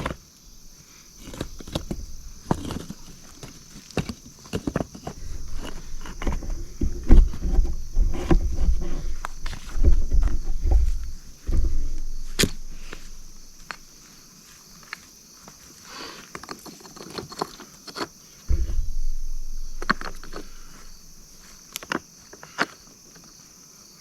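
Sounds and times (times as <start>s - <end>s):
rock clacking on rock: 0.0s - 14.0s, 18.5s - 21.6s
insects chorus: 0.0s - 24.0s
heavy stone thuds: 0.4s - 13.9s, 18.5s - 21.6s.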